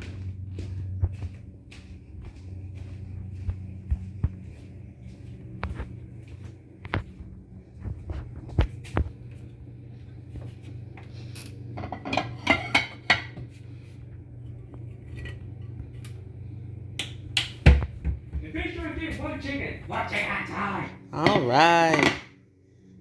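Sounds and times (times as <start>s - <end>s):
steady low hum: 0.0s - 23.0s
dishes and cookware clattering: 11.8s - 13.5s, 21.2s - 22.3s.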